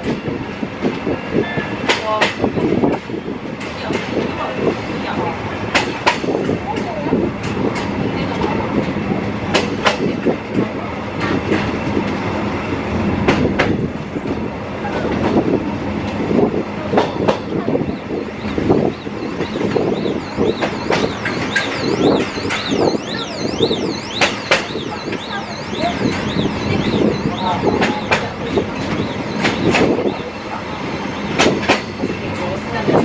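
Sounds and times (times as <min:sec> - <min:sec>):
train rolling over track: 0:00.0 - 0:33.0
level crossing warning alarm: 0:17.4 - 0:32.9.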